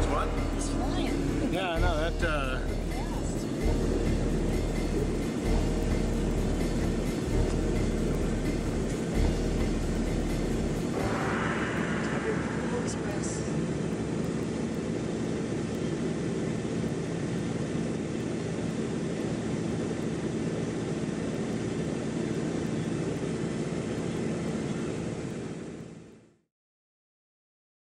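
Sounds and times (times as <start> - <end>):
engine drone: 0.0 - 26.4.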